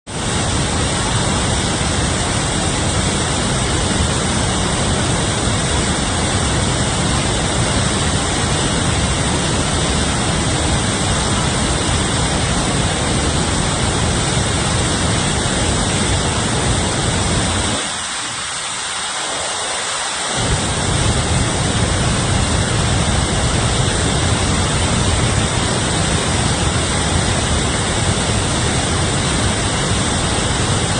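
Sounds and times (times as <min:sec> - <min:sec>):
water rushing: 0:00.1 - 0:30.9
deep low rumble: 0:20.4 - 0:30.9.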